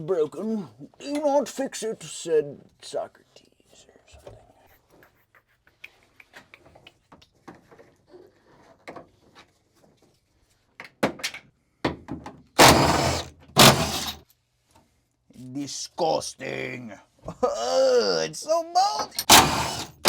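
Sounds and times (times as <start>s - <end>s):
loud scraping rattles: 12.6s - 14.2s, 19.2s - 20.0s
plastic trim being pried: 12.6s - 14.2s, 19.2s - 20.0s.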